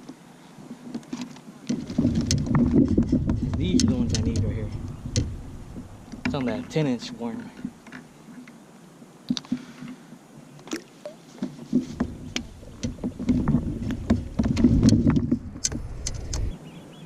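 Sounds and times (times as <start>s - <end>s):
knocks and clicks on a kayak: 0.8s - 6.8s, 11.4s - 16.5s
loud low rumble: 3.0s - 6.8s.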